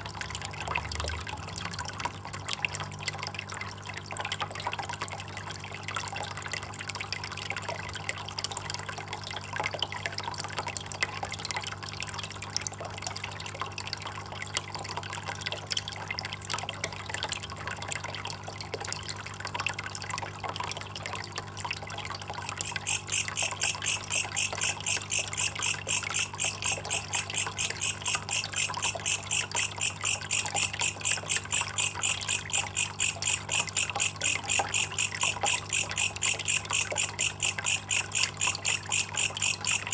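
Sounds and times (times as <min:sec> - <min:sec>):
water trickling and dripping: 0:00.0 - 0:39.9
high-pitched repeated chirping: 0:22.5 - 0:39.9.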